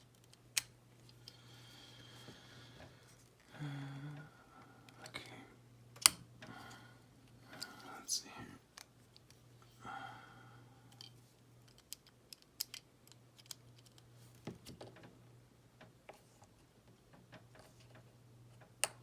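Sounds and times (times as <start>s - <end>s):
low steady hum: 0.0s - 19.0s
small clicks of model parts: 10.9s - 14.1s.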